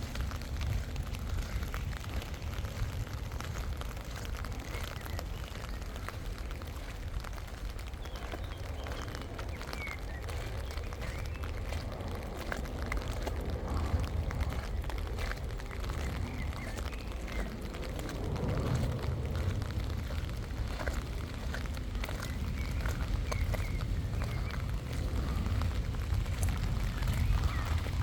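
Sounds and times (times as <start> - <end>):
footsteps clicking: 0.0 - 28.0
wind rumbling on microphone: 0.0 - 28.0.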